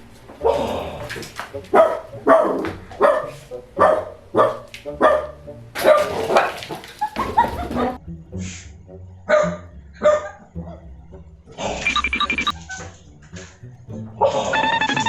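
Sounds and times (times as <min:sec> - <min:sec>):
dog barking: 0:01.7 - 0:08.0, 0:09.3 - 0:10.8.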